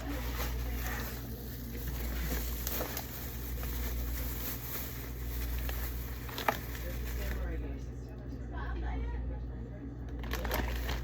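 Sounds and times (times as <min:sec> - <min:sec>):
fruit and packaging rustling: 0:00.0 - 0:07.9, 0:10.2 - 0:11.0
steady low hum: 0:00.0 - 0:11.0.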